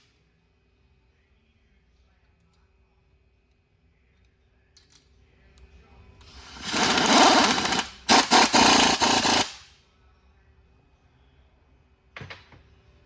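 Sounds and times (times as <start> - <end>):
air impact wrench hammering: 6.3 - 9.6.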